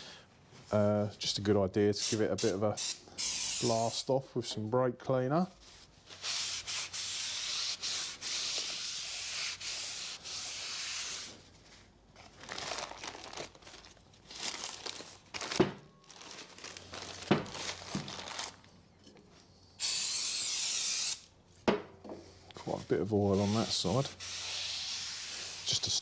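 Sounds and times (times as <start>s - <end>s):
aerosol spray hissing: 2.0s - 3.9s, 19.8s - 21.2s
scrubbing and crinkling: 7.7s - 18.8s.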